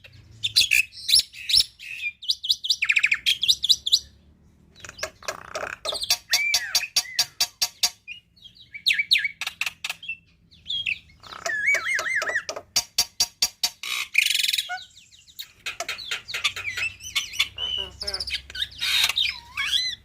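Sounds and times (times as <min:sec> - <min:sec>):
harsh rasping bird call: 0:13.8 - 0:20.0.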